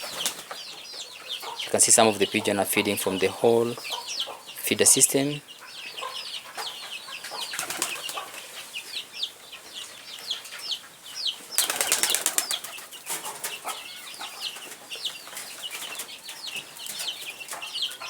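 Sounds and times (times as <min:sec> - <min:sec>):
birds chirping: 0:00.0 - 0:18.0
pigeon wings flapping: 0:07.6 - 0:08.2, 0:11.6 - 0:12.9.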